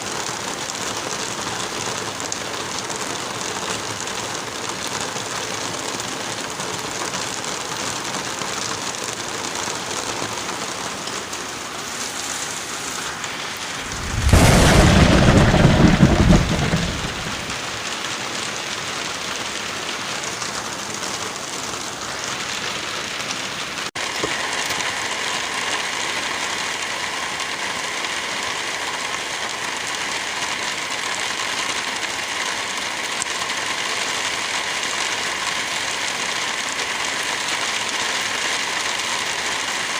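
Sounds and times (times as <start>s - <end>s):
steady rain falling: 0.0s - 39.9s
rumbling thunderclap: 13.6s - 17.8s.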